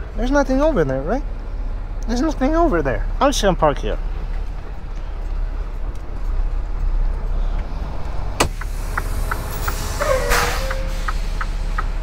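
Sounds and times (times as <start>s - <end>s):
truck engine idling: 0.0s - 12.0s
air hiss: 8.4s - 11.8s.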